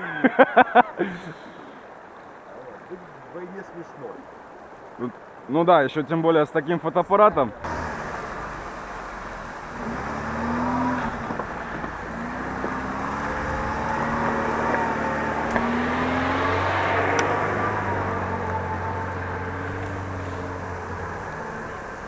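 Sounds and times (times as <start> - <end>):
steady rushing noise: 7.2 - 22.0
engine revving under load: 7.6 - 22.0.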